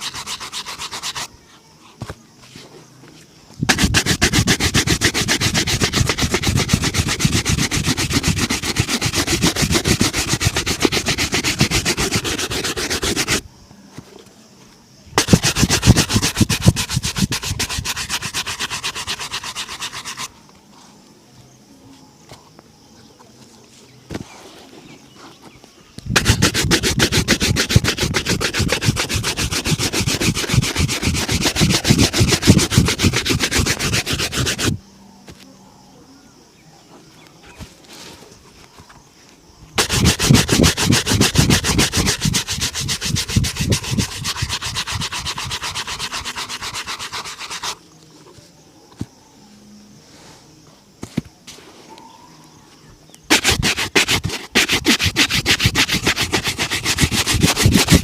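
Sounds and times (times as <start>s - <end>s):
shoe being buffed: 0.0s - 1.3s, 3.7s - 13.4s, 15.2s - 20.3s, 26.1s - 34.8s, 39.8s - 47.8s, 53.3s - 58.0s.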